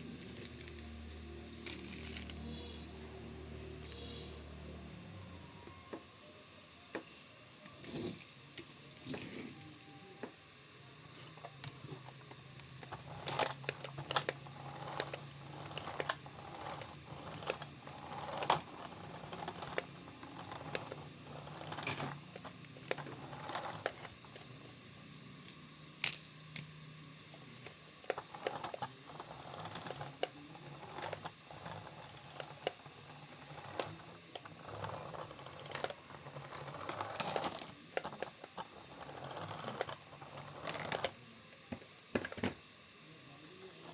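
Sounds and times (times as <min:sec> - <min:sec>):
faint low hum: 0:00.0 - 0:43.9
toys clicking and knocking: 0:11.3 - 0:24.4, 0:27.6 - 0:42.6.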